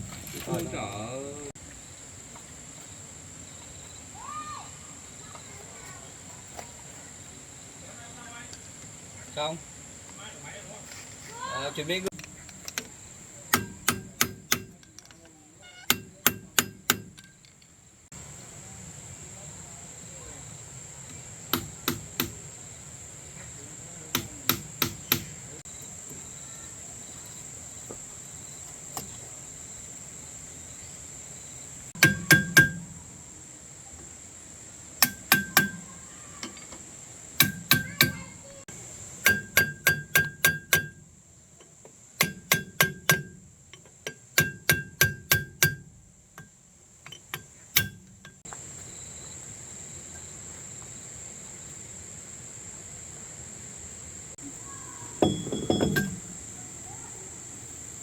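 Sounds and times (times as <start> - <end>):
insects shrilling: 0.0 - 55.3
hammer blows on metal: 13.5 - 14.8, 15.7 - 17.4, 21.5 - 22.4, 24.1 - 25.4, 32.0 - 33.1, 35.0 - 36.6, 37.4 - 38.4, 39.2 - 41.1, 42.2 - 43.4, 44.1 - 46.5, 47.2 - 48.4.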